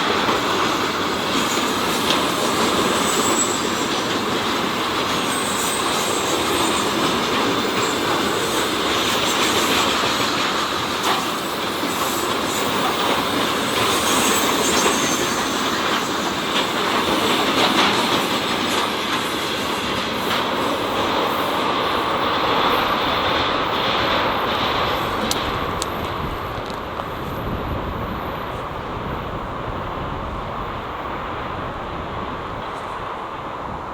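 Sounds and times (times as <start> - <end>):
train wheels rumbling on rails: 0.0 - 33.9
high squeal: 1.5 - 4.0, 11.3 - 16.8.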